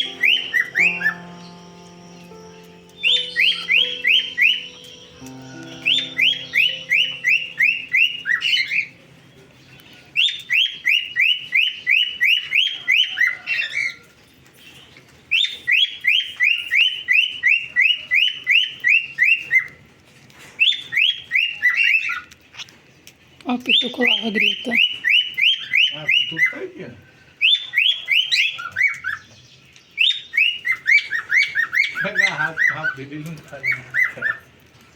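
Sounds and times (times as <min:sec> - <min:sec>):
cockatiel chirping calls: 0:00.0 - 0:05.2, 0:06.0 - 0:14.1, 0:20.6 - 0:22.7, 0:23.7 - 0:26.7, 0:27.4 - 0:29.3, 0:30.0 - 0:34.6.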